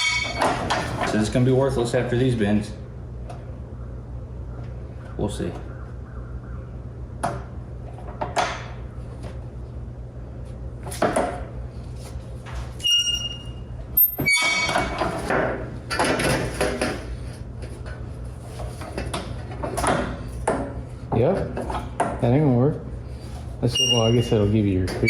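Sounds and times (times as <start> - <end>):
sheet metal ringing: 0.0 - 0.7, 23.7 - 25.0
sheet metal clanking: 0.0 - 1.3
steady low hum: 0.0 - 25.0.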